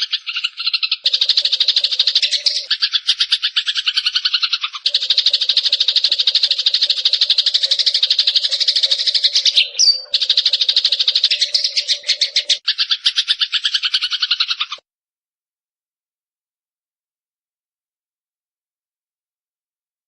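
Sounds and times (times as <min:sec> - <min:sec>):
sparrow chattering trill: 0:00.0 - 0:14.8.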